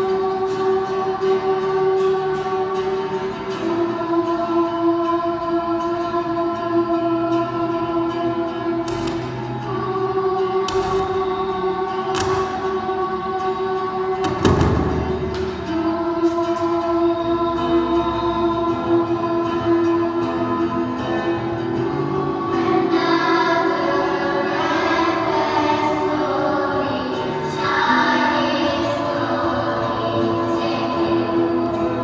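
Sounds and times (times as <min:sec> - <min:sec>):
choir singing in harmony: 0:00.0 - 0:32.0.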